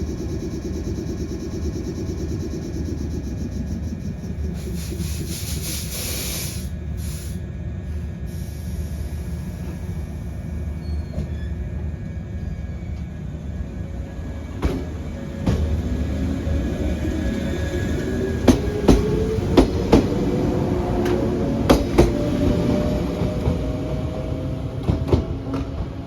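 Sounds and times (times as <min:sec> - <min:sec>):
electric train rumbling: 0:00.0 - 0:26.0
air hiss: 0:04.5 - 0:07.4, 0:08.3 - 0:09.8.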